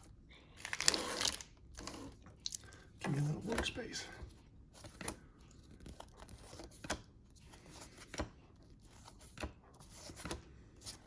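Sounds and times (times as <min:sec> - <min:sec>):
wrapper tearing and crinkling: 0:00.6 - 0:01.6.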